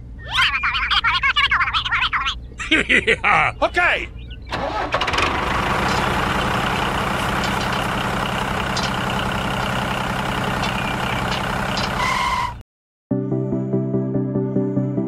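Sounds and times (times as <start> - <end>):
diesel tractor engine running: 4.2 - 12.6.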